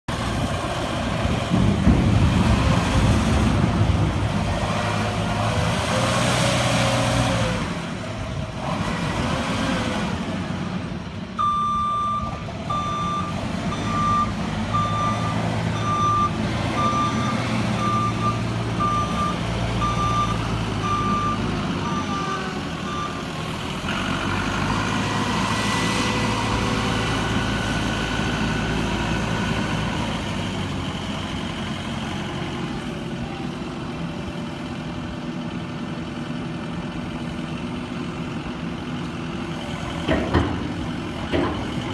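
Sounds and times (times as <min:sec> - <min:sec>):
wheel loader engine working: 0:00.1 - 0:41.9
reversing alarm beeping: 0:11.4 - 0:23.4.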